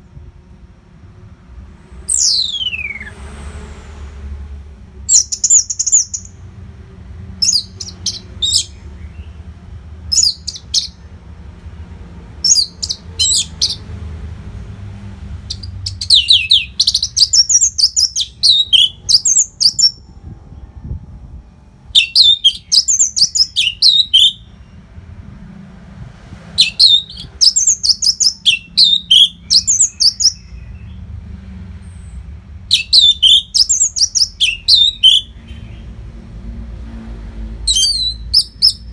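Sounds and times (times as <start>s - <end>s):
thrush singing: 26.5s - 30.5s.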